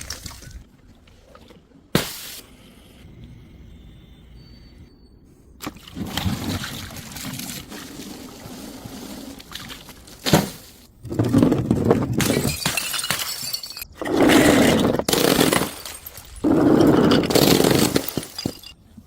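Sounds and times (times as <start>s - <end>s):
glass bottles shattering on stairs: 12.1s - 18.8s.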